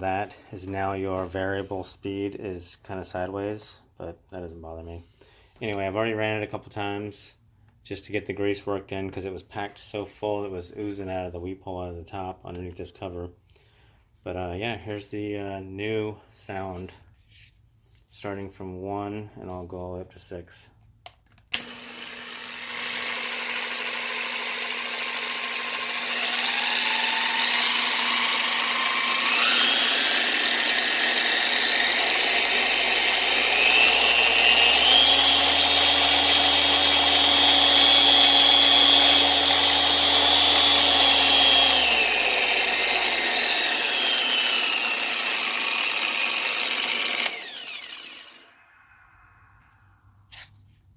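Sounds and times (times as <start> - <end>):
polisher whine: 21.6 - 49.8.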